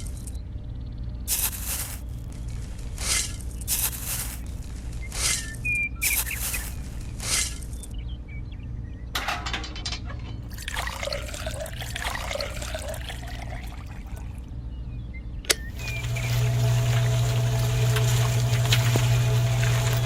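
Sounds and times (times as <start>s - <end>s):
steady low hum: 8.0s - 20.0s
water trickling and splashing: 9.8s - 14.5s, 15.7s - 20.0s
sharp click: 15.4s - 15.7s.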